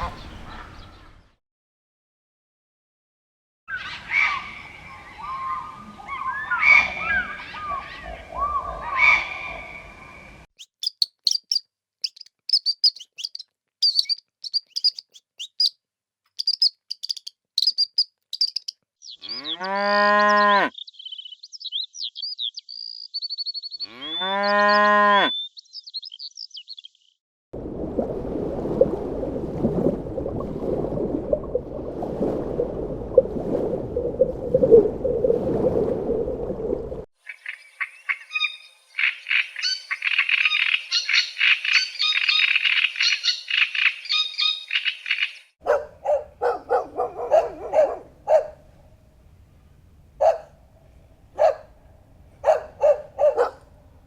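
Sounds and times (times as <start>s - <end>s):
high-pitched twittering: 10.6s - 15.8s, 16.4s - 18.7s
cow mooing: 19.2s - 20.7s, 23.8s - 25.3s.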